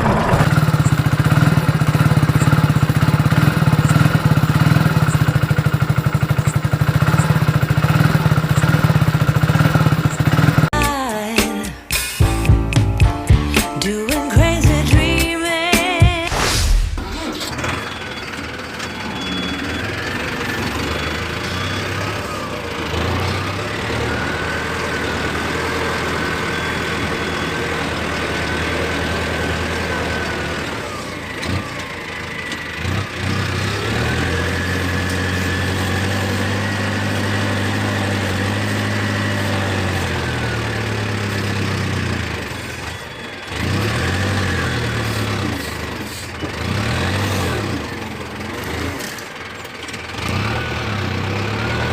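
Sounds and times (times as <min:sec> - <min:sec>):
toy tractor engine sound: 0:00.0 - 0:12.1, 0:13.3 - 0:51.9
high motor whine: 0:16.2 - 0:28.4.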